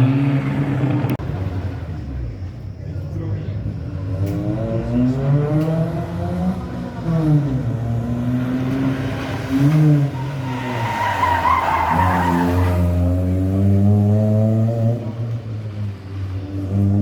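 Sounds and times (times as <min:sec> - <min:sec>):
car engine revving: 0:00.0 - 0:02.5, 0:03.6 - 0:17.0
tyres squealing: 0:09.0 - 0:13.0.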